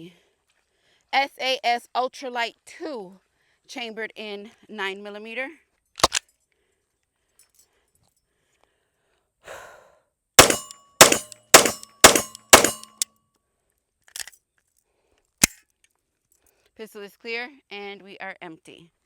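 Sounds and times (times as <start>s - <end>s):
sharp metallic pistol clicks: 6.0s - 6.2s, 10.4s - 13.0s
pistol shots: 10.4s - 13.0s.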